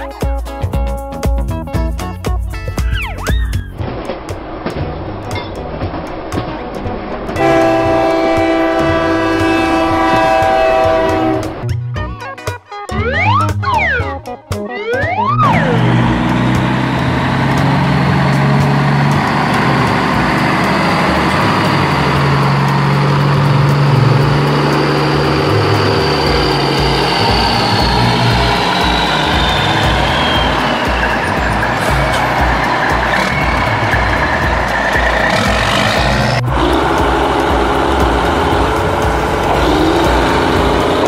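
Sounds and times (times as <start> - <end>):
heavy machine engine hissing: 15.4 - 41.0.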